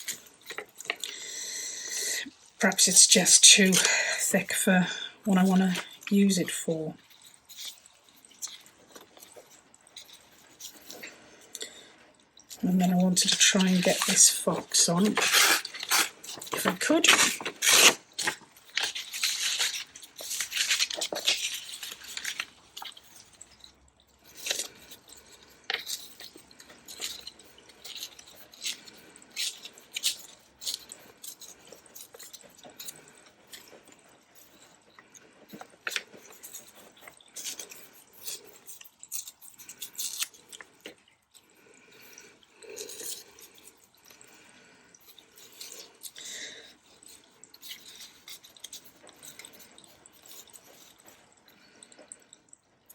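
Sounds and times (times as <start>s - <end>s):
paper rustling and crinkling: 12.8s - 40.9s.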